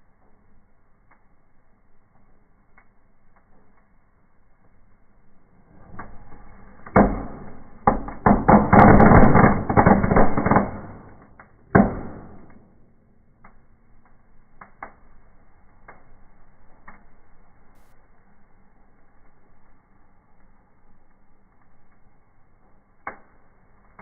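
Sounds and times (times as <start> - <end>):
fireworks crackling and popping: 0.0 - 24.0
loud firework crack: 5.7 - 13.5.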